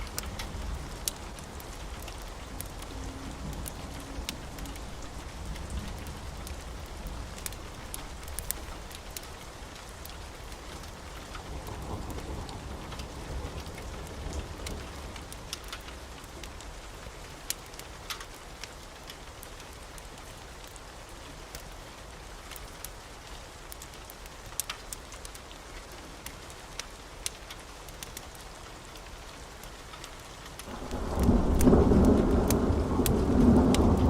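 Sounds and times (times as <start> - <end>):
low rumble of thunder: 0.0 - 15.5, 30.6 - 34.0
steady rain falling: 0.0 - 34.0.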